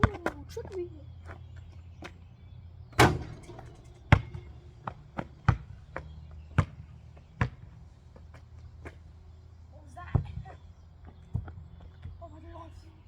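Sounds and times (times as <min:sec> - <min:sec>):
ball bouncing on hard ground: 0:00.0 - 0:02.3, 0:03.0 - 0:09.0, 0:10.1 - 0:12.2
basketball shot striking: 0:03.0 - 0:04.6.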